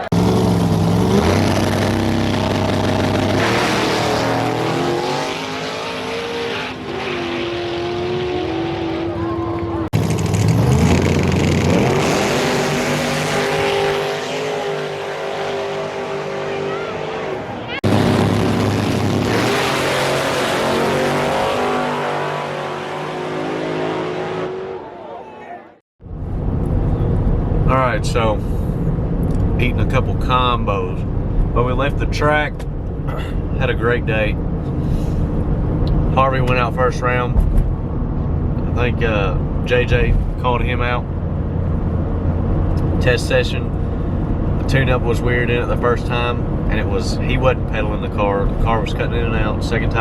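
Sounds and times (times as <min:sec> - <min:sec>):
car engine running loudly: 0:00.0 - 0:06.4, 0:07.5 - 0:24.9.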